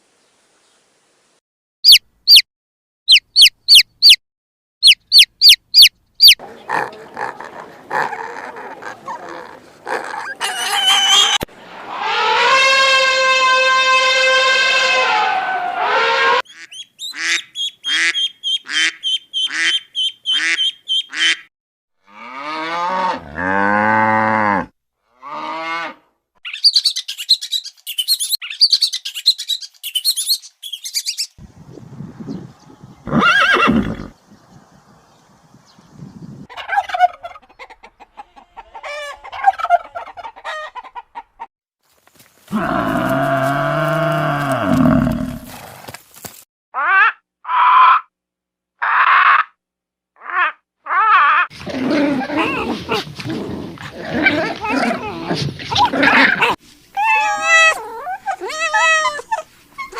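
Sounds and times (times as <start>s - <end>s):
high-pitched bird chattering: 1.8s - 2.4s, 3.1s - 4.2s, 4.8s - 7.3s, 16.5s - 21.4s, 26.4s - 31.4s
fowl calls: 4.8s - 21.4s, 36.5s - 41.4s
cow mooing: 22.0s - 26.1s, 42.5s - 45.6s.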